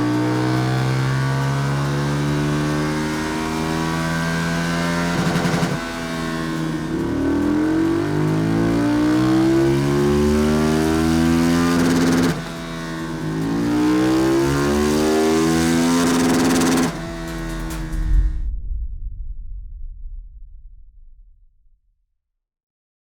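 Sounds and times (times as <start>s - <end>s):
motorcycle engine revving: 0.0s - 18.4s.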